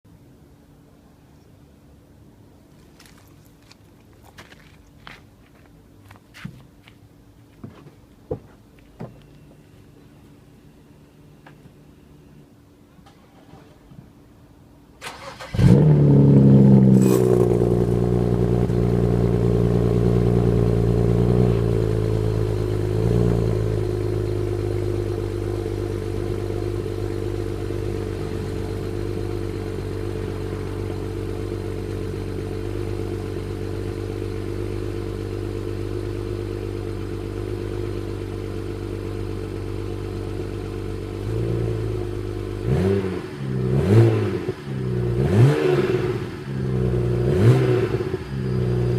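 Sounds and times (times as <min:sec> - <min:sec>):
car engine starting and idling: 0:10.3 - 0:48.9.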